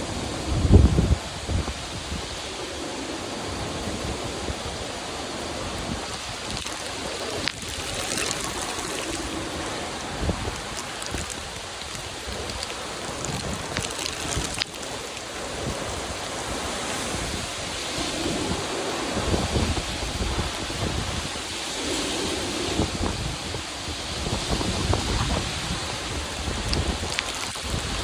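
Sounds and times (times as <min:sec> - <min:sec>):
wind rumbling on microphone: 0:00.0 - 0:28.0
heavy rain pouring: 0:02.6 - 0:28.0.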